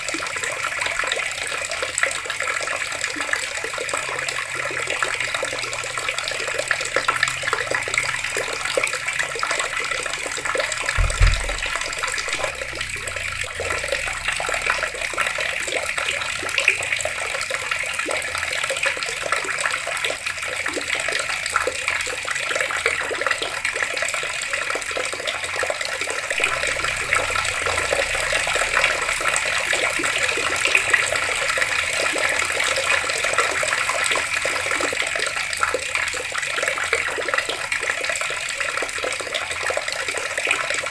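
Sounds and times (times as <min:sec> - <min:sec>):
water running from taps: 0:00.0 - 0:40.9
low thud: 0:11.0 - 0:15.0.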